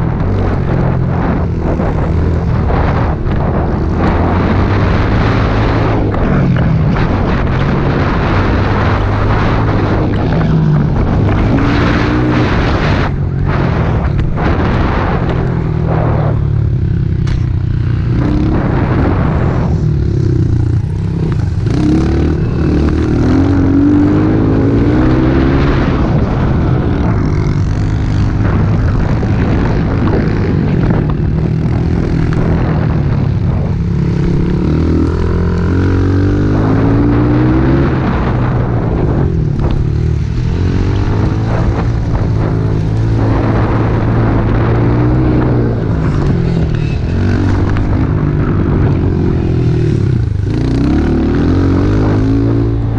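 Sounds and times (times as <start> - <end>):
pit bike engine revving: 0.0 - 52.9.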